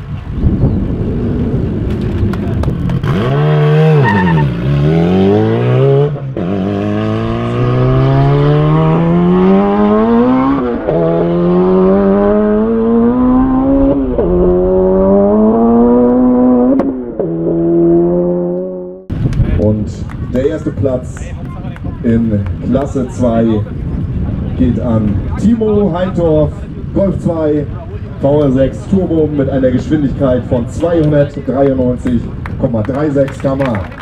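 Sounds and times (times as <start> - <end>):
race car engine accelerating: 1.0 - 19.1
engine gear upshifts: 1.3 - 19.1.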